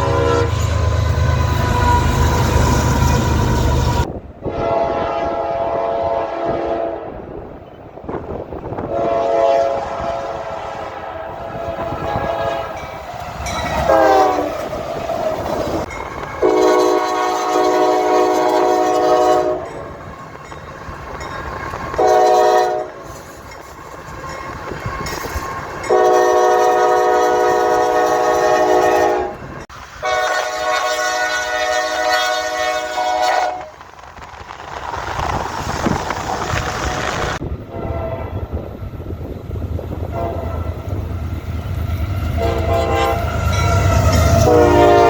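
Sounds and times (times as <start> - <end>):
locomotive air horn: 0.0 - 7.3, 8.8 - 12.9, 13.8 - 14.7, 16.4 - 19.8, 21.9 - 23.3, 25.8 - 33.8, 36.6 - 38.4, 40.1 - 41.0, 42.3 - 45.0
train rumble: 0.0 - 45.0.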